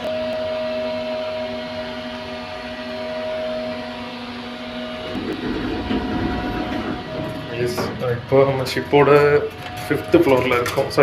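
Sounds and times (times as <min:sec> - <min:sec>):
ship machinery hum: 0:00.0 - 0:11.0
rough low rumble: 0:04.8 - 0:09.2.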